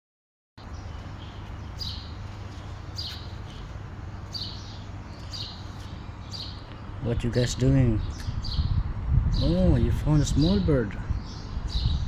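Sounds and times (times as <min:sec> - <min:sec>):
small bird chirping: 0:00.6 - 0:07.0, 0:08.0 - 0:09.6.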